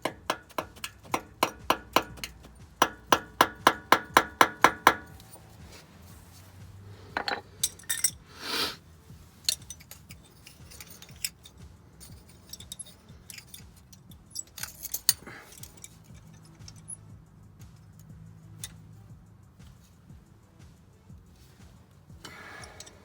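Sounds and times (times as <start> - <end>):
metal tools clinking: 7.0 - 8.3, 9.4 - 17.1, 22.2 - 23.0.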